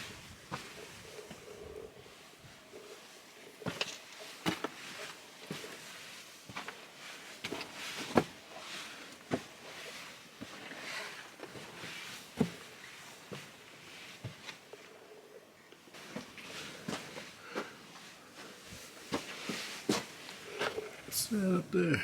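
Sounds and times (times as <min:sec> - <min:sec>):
footsteps on trail: 0:16.0 - 0:21.2.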